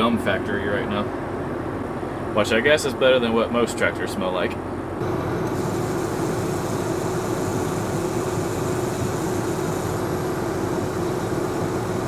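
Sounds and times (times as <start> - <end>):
mid-pitched whine: 0.0 - 12.0
tractor engine running: 5.0 - 12.0.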